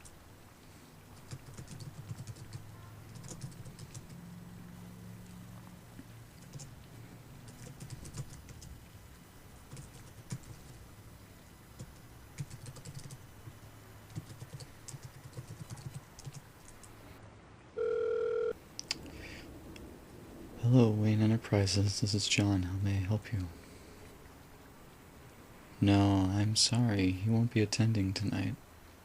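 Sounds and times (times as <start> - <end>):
rain: 0.0 - 17.7, 18.6 - 29.0
computer keyboard typing: 1.2 - 4.2, 6.4 - 6.8, 7.4 - 8.8, 9.7 - 10.8, 11.8 - 13.2, 14.1 - 16.9
electronic telephone ring: 17.8 - 18.6.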